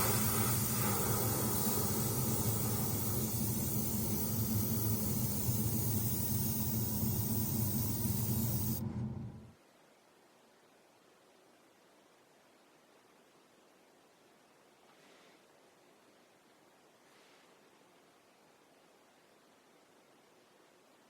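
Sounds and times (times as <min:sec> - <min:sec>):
paint spray hiss: 0:00.0 - 0:08.8
low motor hum: 0:00.0 - 0:09.6.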